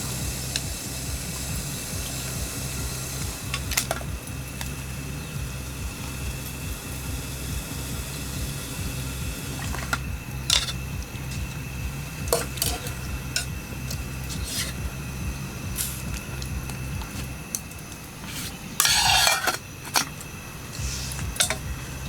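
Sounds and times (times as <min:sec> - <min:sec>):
low rumble: 0:00.0 - 0:17.8, 0:20.4 - 0:22.0
metal cookware clinking: 0:09.5 - 0:14.9, 0:15.7 - 0:20.3, 0:21.0 - 0:21.7.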